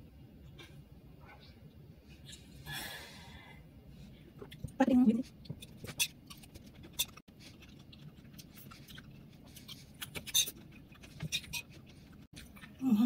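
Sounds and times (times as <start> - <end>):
person chewing crunchy salad: 6.2 - 12.8.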